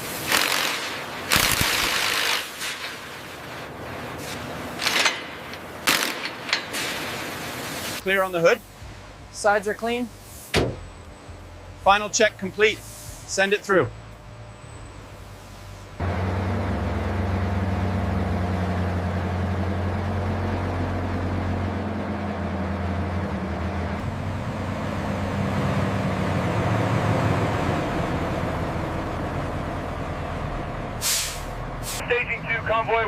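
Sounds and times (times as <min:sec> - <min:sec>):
heavy vehicle engine running: 0:08.0 - 0:33.0.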